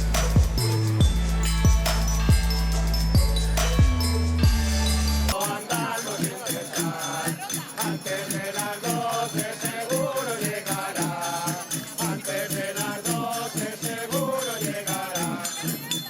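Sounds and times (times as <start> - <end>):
jingling hand percussion: 0.0 - 16.0
group singing a carol: 3.3 - 16.0.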